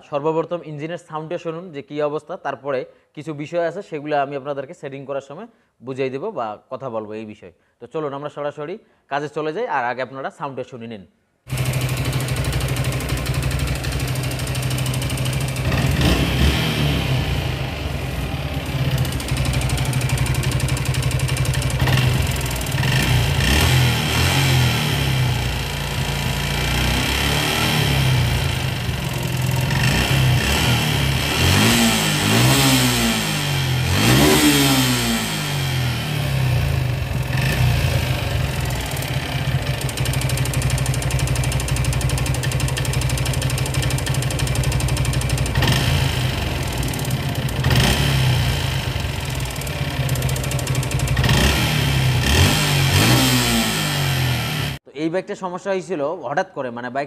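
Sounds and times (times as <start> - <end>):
motorcycle engine idling and revving: 11.5 - 54.8.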